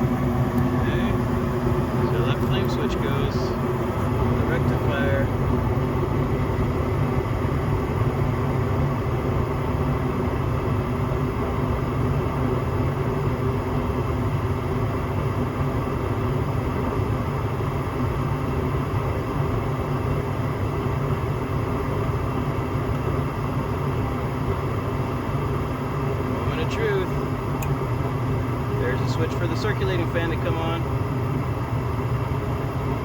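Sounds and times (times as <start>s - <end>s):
gas furnace rumbling: 0.0s - 33.0s.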